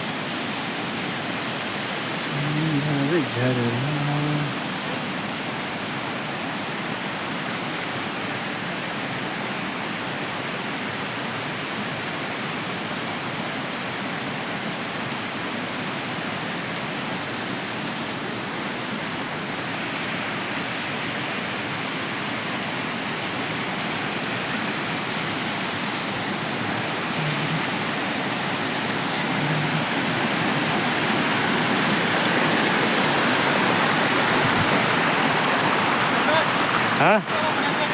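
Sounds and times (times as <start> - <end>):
rushing water: 0.0 - 37.9.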